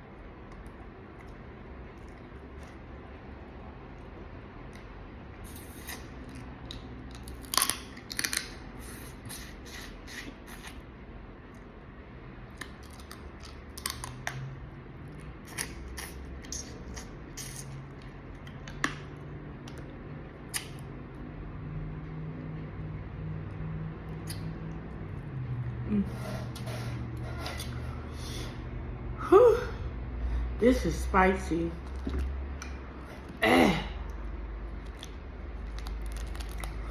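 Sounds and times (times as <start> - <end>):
shells cracking and crunching: 6.7 - 8.7, 34.8 - 36.9.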